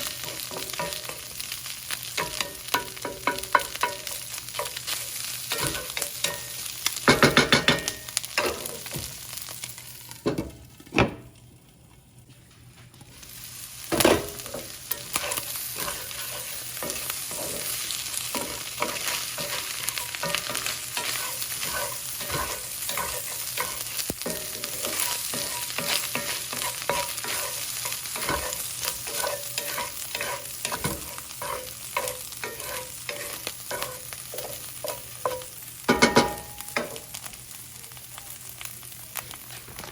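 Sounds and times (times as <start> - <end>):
food sizzling in a frying pan: 0.0 - 39.9
utensil scraping a pan: 14.0 - 35.4.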